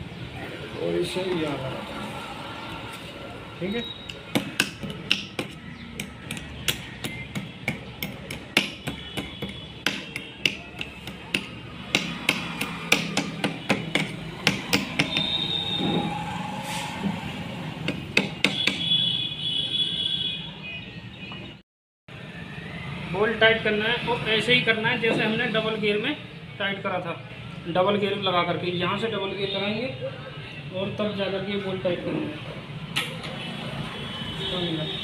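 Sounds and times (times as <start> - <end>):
hammer tapping on metal: 4.1 - 15.4, 17.8 - 19.0.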